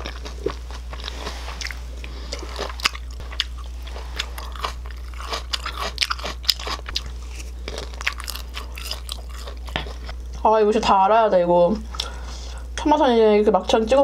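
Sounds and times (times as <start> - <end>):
crisp chewing crunches: 0.0 - 10.1
low steady hum: 0.0 - 14.0.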